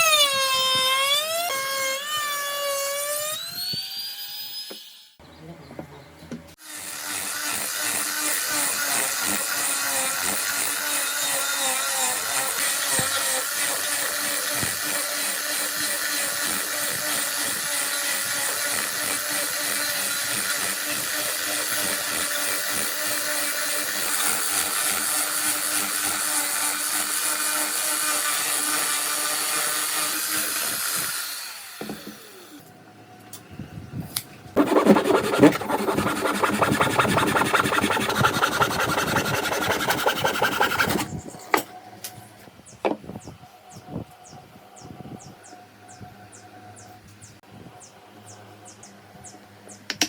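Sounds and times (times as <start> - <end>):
power tool cutting wood: 0.0 - 5.2, 6.6 - 32.6, 34.6 - 41.2.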